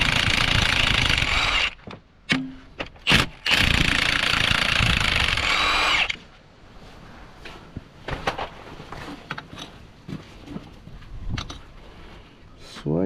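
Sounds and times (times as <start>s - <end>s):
power tool spinning out bolts: 0.0s - 1.8s, 3.1s - 6.2s.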